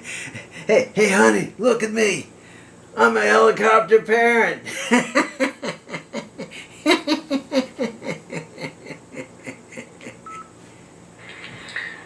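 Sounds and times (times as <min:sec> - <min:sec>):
person laughing: 0:04.7 - 0:10.4.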